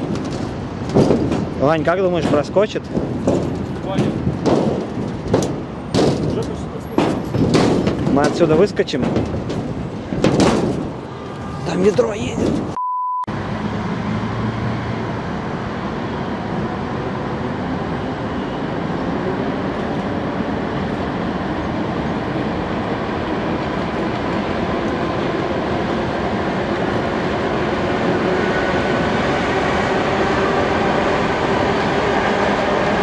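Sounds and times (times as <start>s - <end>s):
electric train on railway bridge: 0.0s - 33.0s
heavy road traffic: 0.0s - 33.0s.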